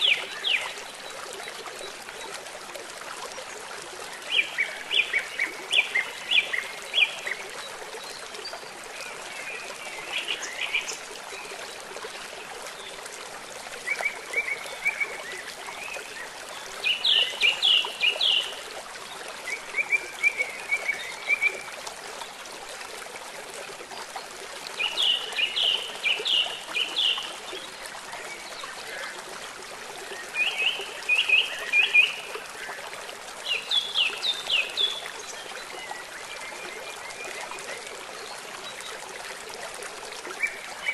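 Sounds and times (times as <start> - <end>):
running water rushing: 0.0 - 40.9.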